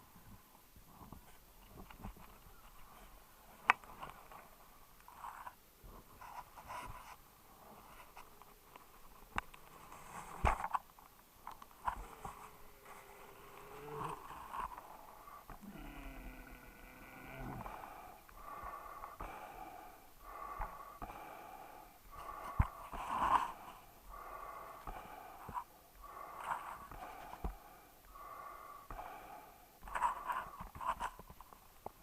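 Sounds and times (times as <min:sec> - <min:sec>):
dog breathing noisily: 0:17.6 - 0:30.6.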